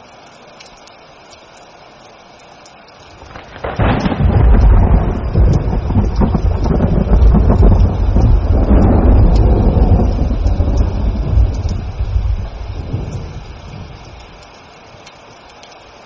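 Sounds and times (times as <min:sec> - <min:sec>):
rain falling: 0:00.0 - 0:16.0
rolling thunder: 0:03.2 - 0:14.4.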